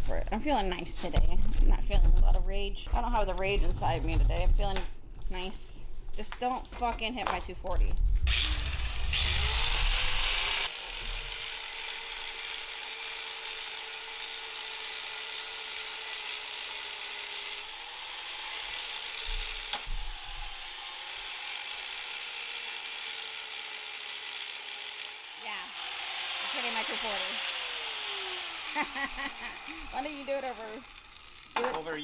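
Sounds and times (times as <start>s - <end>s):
angle grinder grinding steel: 8.2s - 32.0s.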